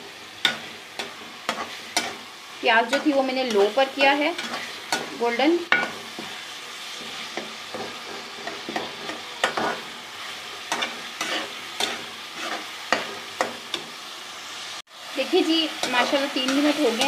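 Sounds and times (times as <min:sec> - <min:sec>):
mince sizzling in a pan: 0:00.0 - 0:17.0
spoon scraping and knocking pan: 0:00.4 - 0:14.0.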